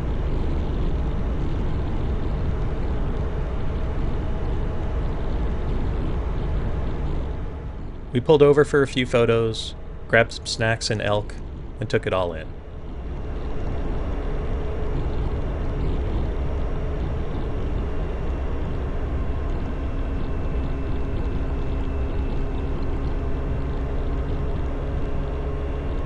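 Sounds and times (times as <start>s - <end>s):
motorcycle engine drone: 0.0s - 26.0s.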